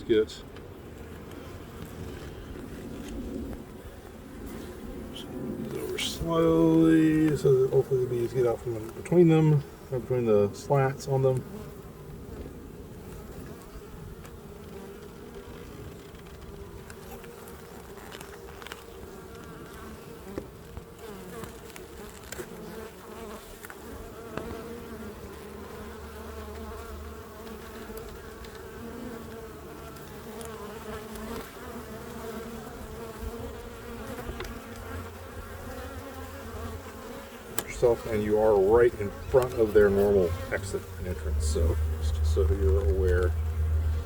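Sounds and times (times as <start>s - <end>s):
honeybees buzzing: 0.0s - 44.0s.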